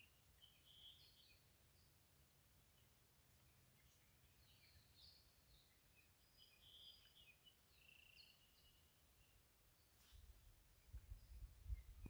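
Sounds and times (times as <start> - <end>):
faint birdsong chirps and whistles: 0.0 - 12.0.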